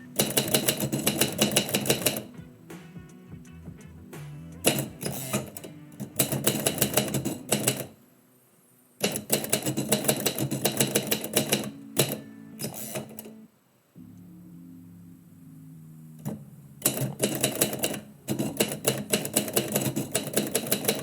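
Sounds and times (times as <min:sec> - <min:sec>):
typewriter keystrokes: 0:00.2 - 0:02.3, 0:04.6 - 0:08.0, 0:09.0 - 0:13.3, 0:16.2 - 0:21.0.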